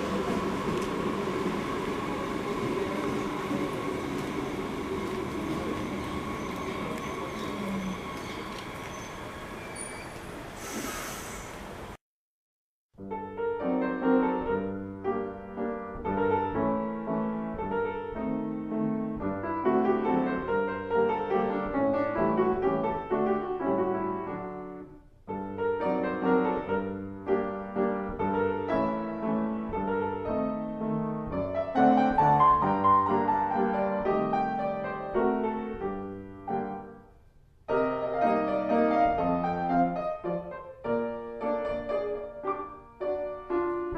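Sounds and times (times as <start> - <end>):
solo piano music: 13.0 - 43.9.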